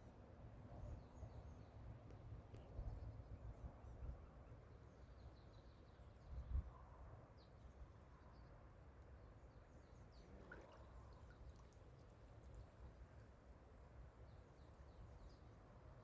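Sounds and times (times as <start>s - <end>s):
wind rumble on microphone: 6.2s - 6.8s.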